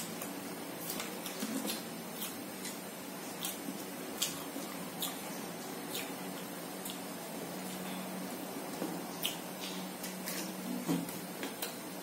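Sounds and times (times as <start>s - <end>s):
wet mouth clicks while chewing: 3.4s - 3.6s, 6.8s - 7.0s.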